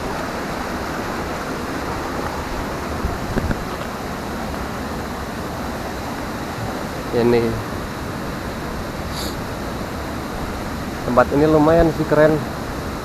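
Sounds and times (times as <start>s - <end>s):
small waterfall rushing: 0.0s - 13.0s.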